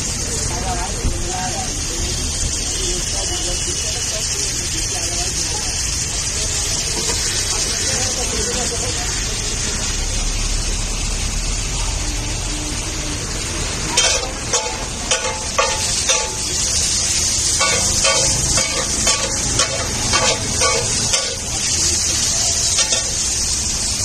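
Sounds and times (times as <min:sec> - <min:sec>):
vegetables sizzling on a griddle: 0:00.0 - 0:24.0
metal spatula clanking on griddle: 0:13.9 - 0:23.4.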